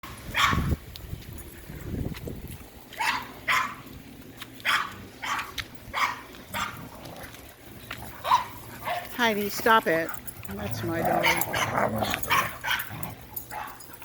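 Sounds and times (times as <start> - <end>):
dog barking: 0.3 - 0.7, 3.0 - 3.8, 4.6 - 6.8, 8.2 - 9.1, 11.2 - 13.9.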